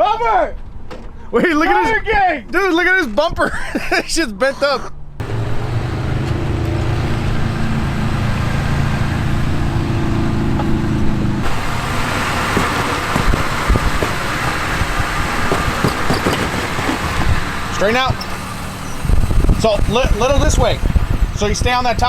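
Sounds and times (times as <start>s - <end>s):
noisy rushing sound: 5.2s - 22.0s
truck engine running: 5.2s - 22.0s.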